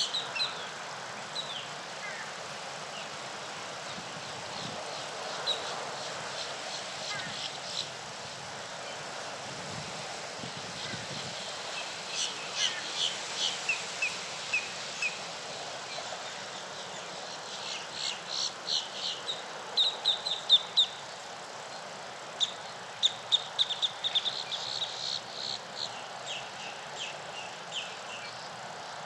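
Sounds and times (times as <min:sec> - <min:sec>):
faint steady hiss: 0:00.0 - 0:29.0
songbirds chirping: 0:11.0 - 0:29.0.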